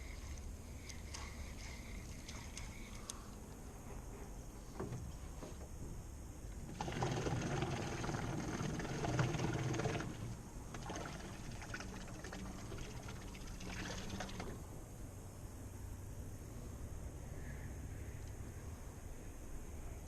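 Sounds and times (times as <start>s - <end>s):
water splashing and trickling: 6.6s - 14.6s.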